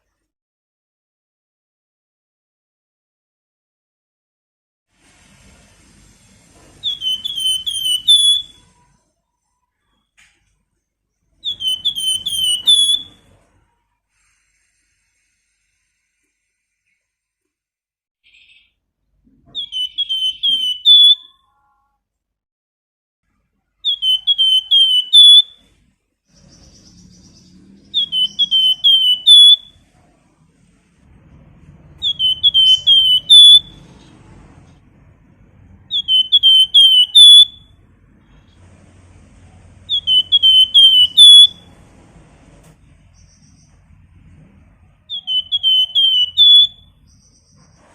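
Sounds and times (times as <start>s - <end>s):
songbird whistling: 6.8s - 8.9s, 11.3s - 13.4s, 19.5s - 21.4s, 23.8s - 25.7s, 26.3s - 29.9s, 31.9s - 34.0s, 35.8s - 37.8s, 39.8s - 41.8s, 45.0s - 47.9s.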